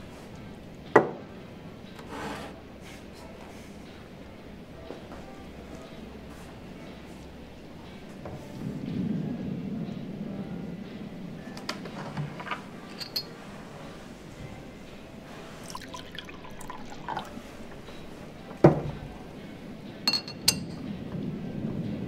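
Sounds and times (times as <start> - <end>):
glass clinks: 12.9 - 13.4, 20.1 - 20.8
liquid pouring into glass: 15.6 - 17.4.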